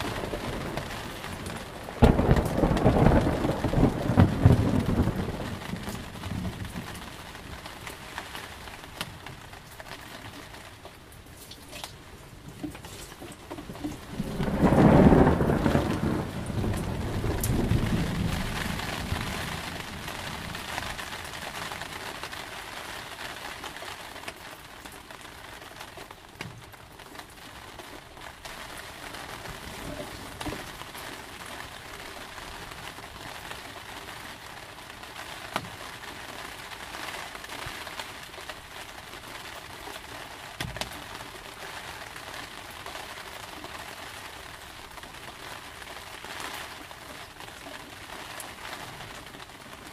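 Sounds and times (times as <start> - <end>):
thunderclap rumbling: 0.0 - 7.2, 13.6 - 21.6
steady rain: 0.0 - 49.9.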